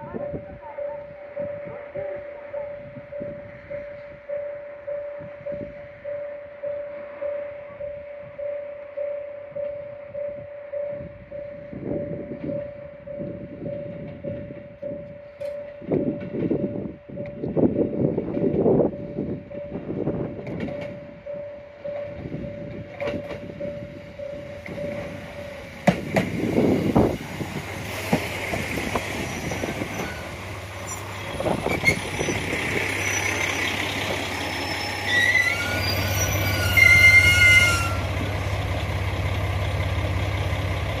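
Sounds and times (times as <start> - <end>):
train wheels on rails: 8.7 - 41.0
wheels squealing: 28.9 - 38.1.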